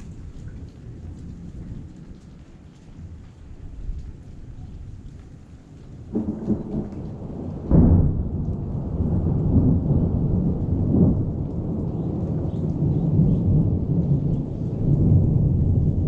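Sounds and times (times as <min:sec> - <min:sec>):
rain: 0:00.0 - 0:16.0
thunder rumbling: 0:03.0 - 0:16.0
sharp thunder clap: 0:06.1 - 0:16.0.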